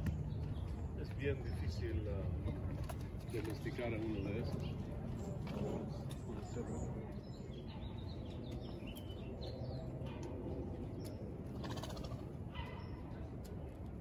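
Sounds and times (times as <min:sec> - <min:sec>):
birds chirping: 0:00.0 - 0:14.0
low background hum: 0:00.0 - 0:14.0.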